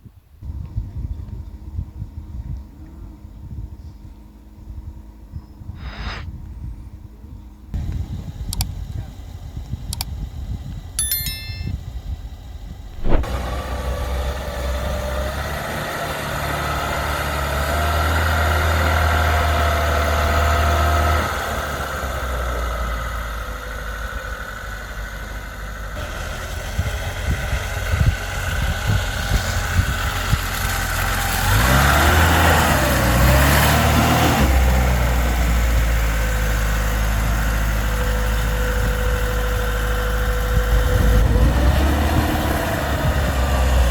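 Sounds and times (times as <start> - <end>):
vehicle engine running: 12.5 - 43.9
sharp click: 13.0 - 13.3.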